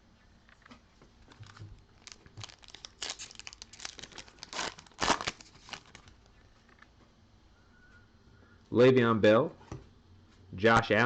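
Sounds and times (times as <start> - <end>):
plastic wrapper crinkling and tearing: 1.2 - 6.3.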